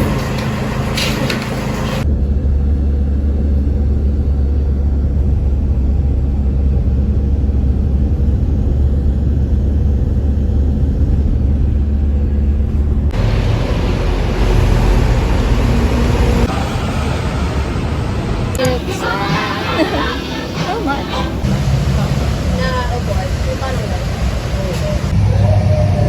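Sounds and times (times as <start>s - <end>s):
road rumble inside moving car: 0.0s - 19.1s.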